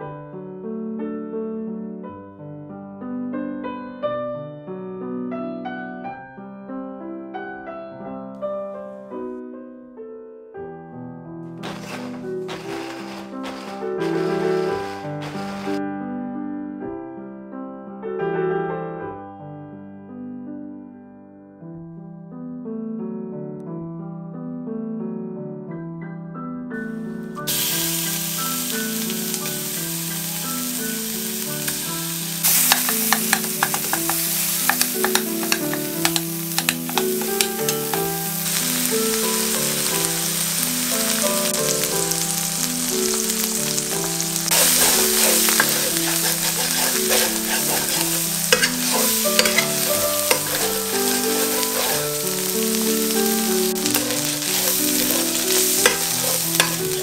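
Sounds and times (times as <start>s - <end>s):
soft piano music: 0.0s - 57.0s
sausage sizzling in a skillet: 11.6s - 15.8s, 27.2s - 57.0s
spoon scraping a pan: 11.6s - 15.8s, 27.5s - 57.0s.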